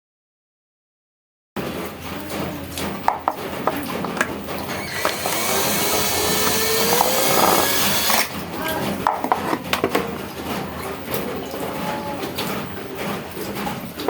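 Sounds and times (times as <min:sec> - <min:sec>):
clicks and scraping: 0:01.6 - 0:14.0
small electric motor running: 0:04.8 - 0:08.3.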